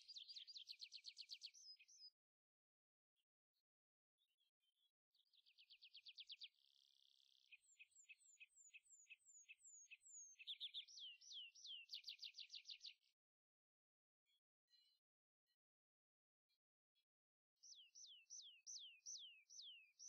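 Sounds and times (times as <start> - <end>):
songbird singing: 0.0 - 2.2, 5.3 - 13.0, 17.6 - 20.0.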